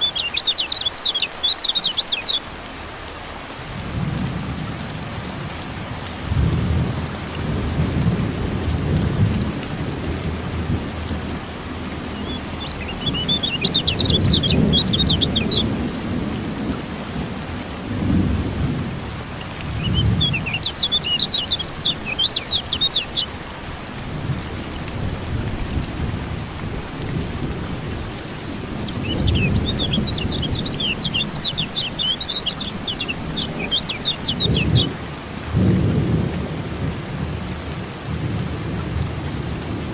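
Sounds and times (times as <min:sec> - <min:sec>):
bird chirping rapidly: 0:00.0 - 0:02.5, 0:12.2 - 0:15.7, 0:19.4 - 0:23.3, 0:28.9 - 0:35.0
steady rain: 0:00.0 - 0:39.9
low rumbles of thunder: 0:03.7 - 0:22.9, 0:24.0 - 0:39.9.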